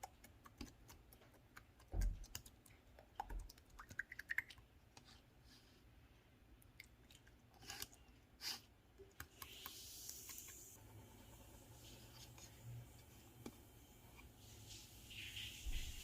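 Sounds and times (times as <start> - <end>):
soft hiss of air: 9.4 - 16.0.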